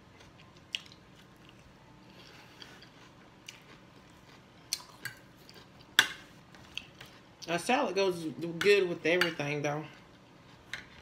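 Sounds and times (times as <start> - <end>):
person chewing lettuce: 0.0 - 7.3.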